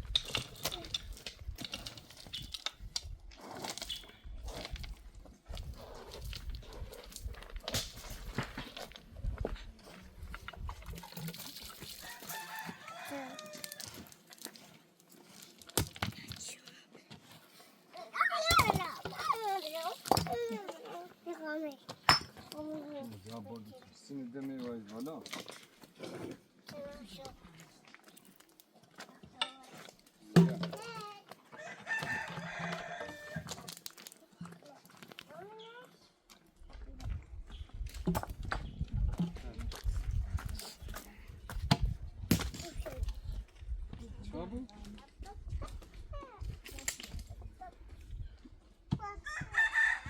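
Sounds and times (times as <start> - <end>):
rooster crowing: 12.0 - 13.9, 31.6 - 33.5, 49.2 - 50.0.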